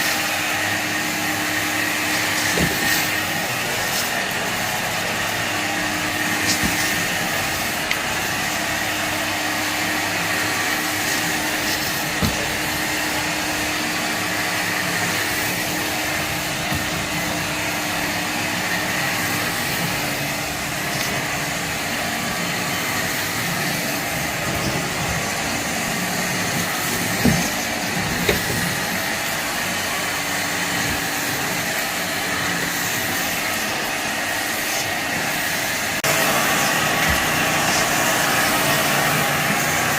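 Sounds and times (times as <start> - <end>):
vacuum cleaner running: 0.0 - 39.9
debris knocking in vacuum: 6.0 - 8.1, 10.6 - 13.4.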